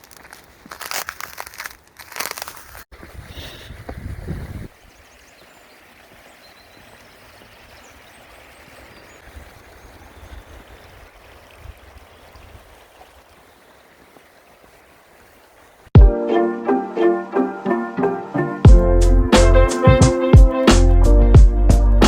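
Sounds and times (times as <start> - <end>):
stream flowing: 4.7 - 19.1.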